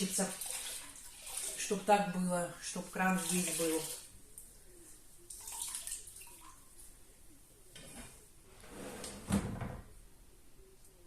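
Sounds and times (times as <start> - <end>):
water splashing and sloshing: 0.0 - 4.1, 5.3 - 6.7.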